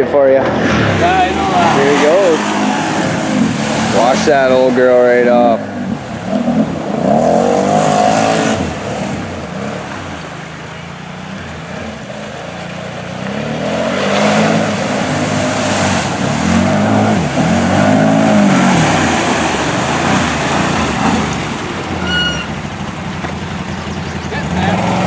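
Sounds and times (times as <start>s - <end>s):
atv engine revving: 0.0s - 25.0s
water splashing: 0.0s - 25.0s
short high squeak: 21.9s - 22.7s.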